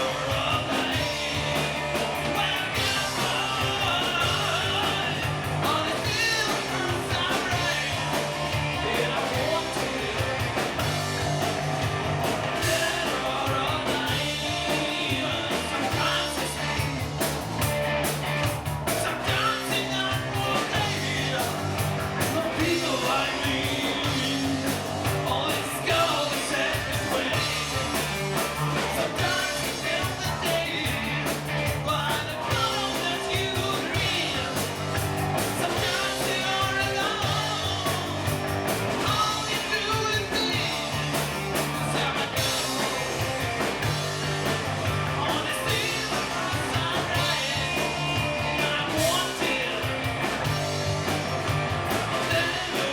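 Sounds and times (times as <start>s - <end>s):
live rock band playing: 0.0s - 52.9s
person singing: 19.0s - 34.8s, 52.2s - 52.9s.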